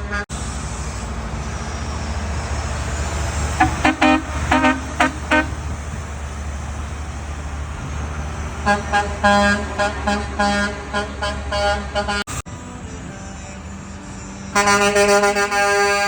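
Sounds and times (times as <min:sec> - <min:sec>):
truck horns tooting: 0:00.0 - 0:12.5, 0:13.7 - 0:16.0
truck engines rumbling: 0:00.0 - 0:16.0.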